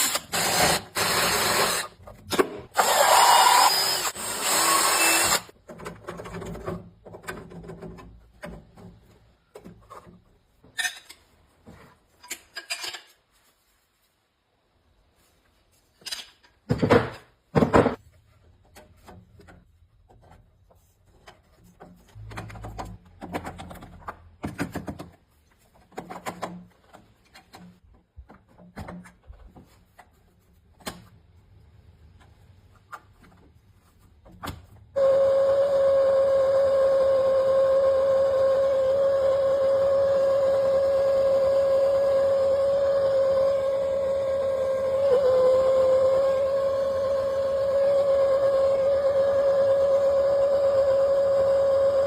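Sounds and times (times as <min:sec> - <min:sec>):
tools and parts clattering: 0:05.6 - 0:13.3.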